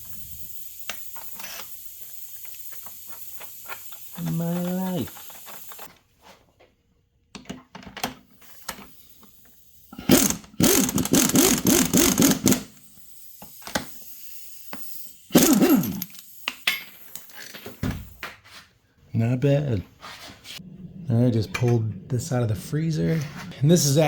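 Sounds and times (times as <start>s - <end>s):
impact driver running: 10.0s - 12.8s, 15.3s - 16.2s
metal parts clicking and clanking: 13.4s - 17.8s.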